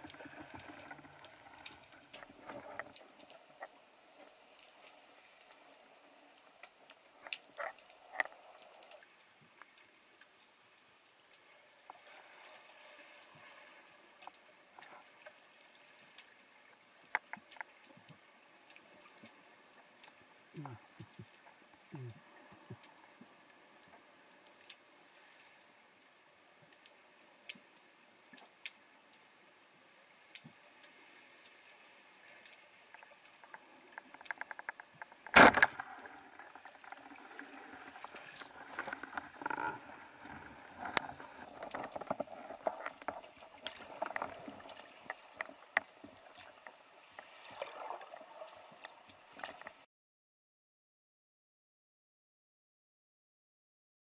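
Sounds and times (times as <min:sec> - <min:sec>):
water sloshing and gurgling: 0:00.0 - 0:26.8, 0:32.1 - 0:49.9
underwater clicks: 0:32.5 - 0:48.0.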